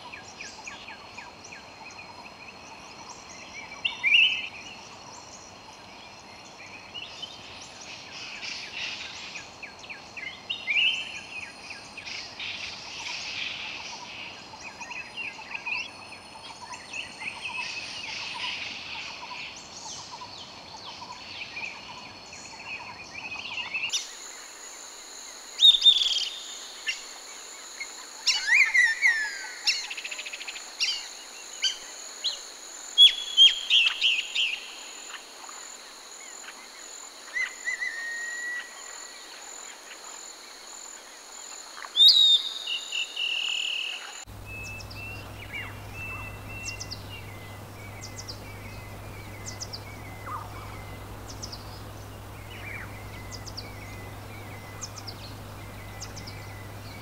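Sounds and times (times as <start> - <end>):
insect drone: 0.0 - 57.0
birds calling: 38.6 - 57.0.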